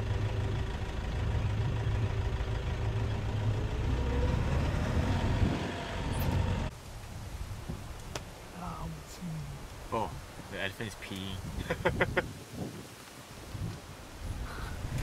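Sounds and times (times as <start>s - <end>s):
vehicle engine idling: 0.0s - 6.8s.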